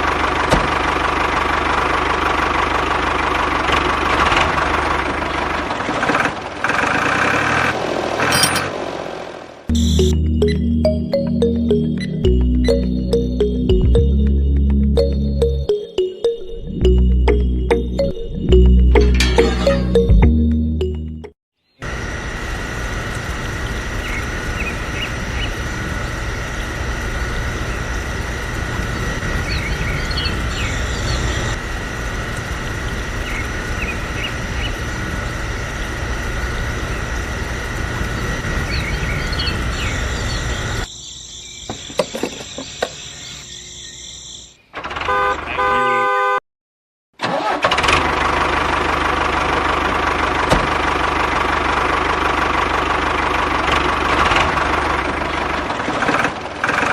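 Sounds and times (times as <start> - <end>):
engine-like running noise: 0.0 - 15.8, 21.8 - 40.9, 47.2 - 56.9.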